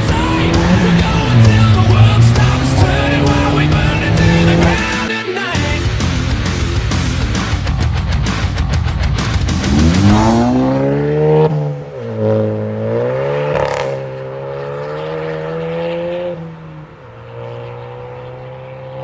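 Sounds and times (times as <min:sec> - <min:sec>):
exhaust pop: 0:00.0 - 0:05.1, 0:05.8 - 0:12.0
car engine revving: 0:00.0 - 0:19.0.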